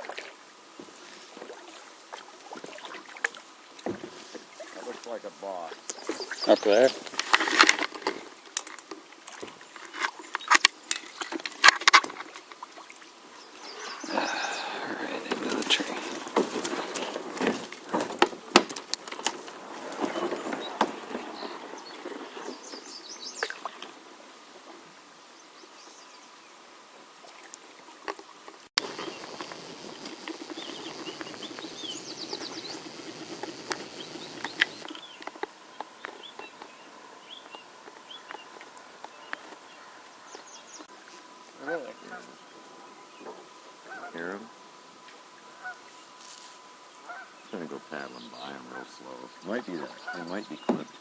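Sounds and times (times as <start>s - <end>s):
small birds chirping: 4.2s - 7.4s, 9.3s - 11.7s, 12.7s - 26.7s, 28.8s - 51.0s
kayak paddle knocks: 50.1s - 51.0s.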